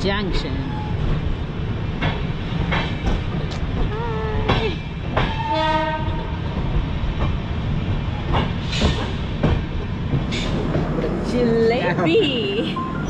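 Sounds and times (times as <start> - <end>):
train coach rumble: 0.0 - 13.0
locomotive horn: 5.4 - 6.4.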